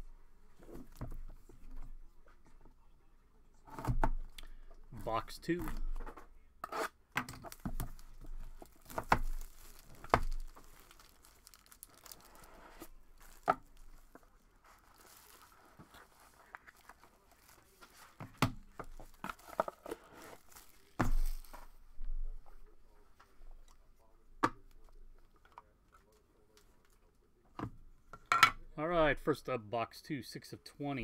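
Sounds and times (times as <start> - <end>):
wrapping tearing and crinkling: 7.5 - 18.2, 18.9 - 21.7.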